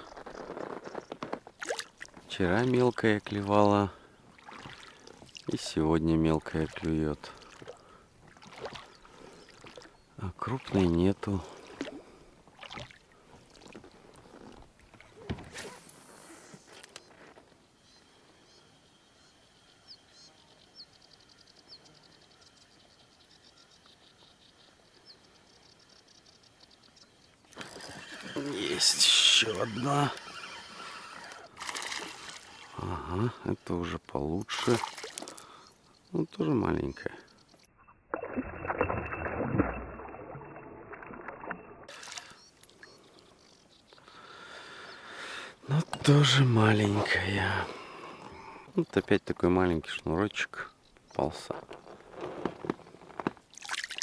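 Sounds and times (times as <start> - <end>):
water splashing beside boat: 1.1 - 16.0, 27.5 - 32.8, 34.4 - 35.7, 38.1 - 43.1, 52.0 - 54.0
faint birdsong chirps: 2.3 - 31.6, 32.3 - 52.2.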